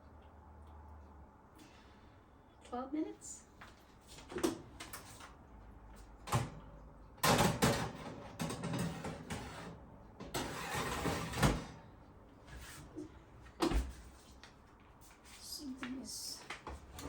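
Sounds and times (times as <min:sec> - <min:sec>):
baking tray scraping and rattling: 0:07.2 - 0:11.9.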